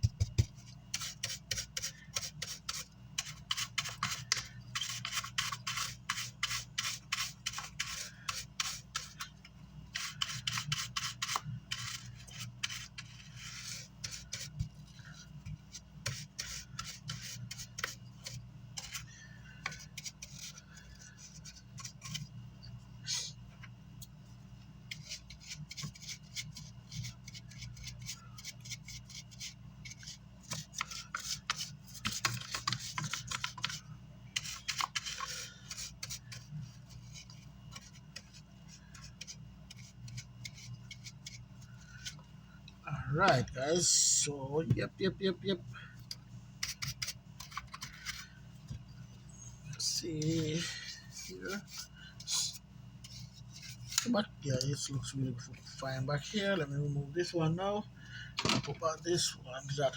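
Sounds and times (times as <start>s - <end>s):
brush scrubbing circuit board: 0.0s - 22.3s, 24.9s - 41.4s
steady low hum: 0.0s - 59.9s.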